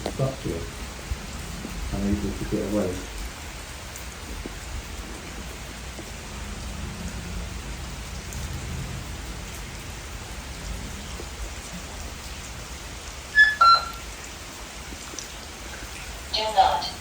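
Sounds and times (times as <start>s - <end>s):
steady rain falling: 0.0s - 17.0s
short electronic beeps: 13.4s - 14.0s.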